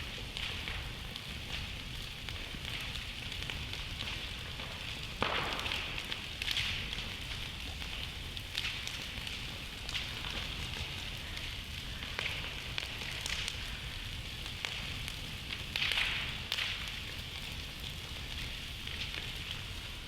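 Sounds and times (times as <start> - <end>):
campfire hissing: 0.0 - 20.0
fire crackles and pops: 0.0 - 20.0.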